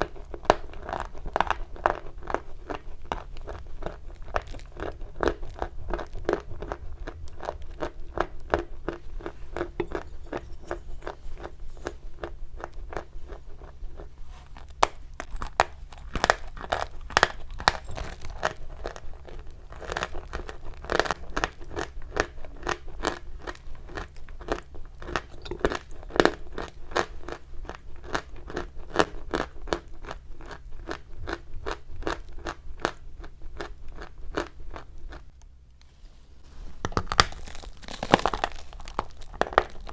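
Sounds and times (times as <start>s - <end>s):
chalk crunching: 8.9s - 18.4s.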